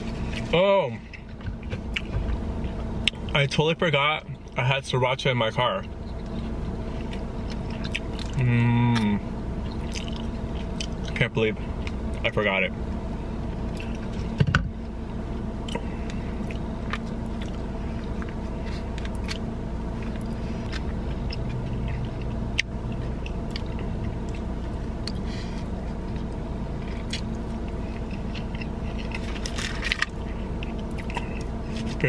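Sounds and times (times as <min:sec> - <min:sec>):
steady low hum: 0:00.0 - 0:32.0
person chewing food: 0:01.1 - 0:03.3, 0:05.8 - 0:12.2, 0:13.6 - 0:14.4, 0:15.6 - 0:32.0
small clicks and crunches: 0:28.1 - 0:32.0.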